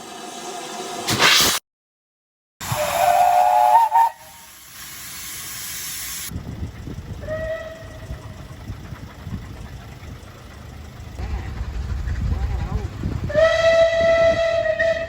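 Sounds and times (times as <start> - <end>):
steam whistle chord: 2.6 - 4.5, 13.3 - 15.0
short steam whistle toot: 2.6 - 4.6, 13.3 - 15.0
steam hissing: 2.6 - 15.0
low rumbling: 6.4 - 15.0.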